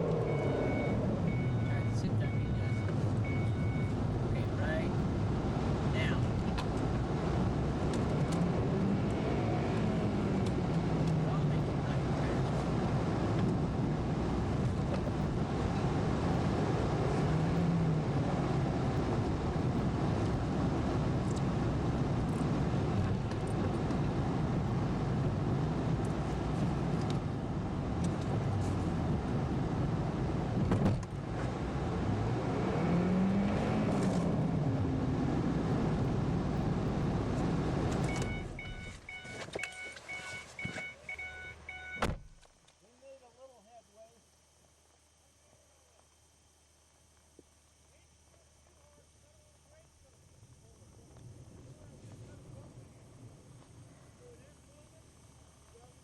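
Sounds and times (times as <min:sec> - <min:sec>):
vehicle engine revving: 0:00.0 - 0:05.9, 0:06.6 - 0:39.0.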